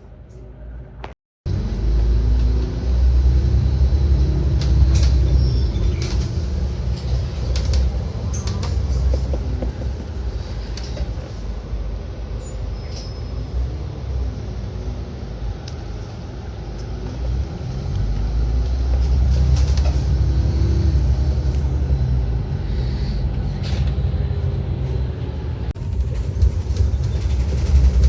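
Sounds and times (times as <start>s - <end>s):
bus engine and road rumble: 0.0s - 28.0s
rattles and clicks: 4.5s - 11.5s, 18.6s - 20.2s, 25.8s - 28.0s.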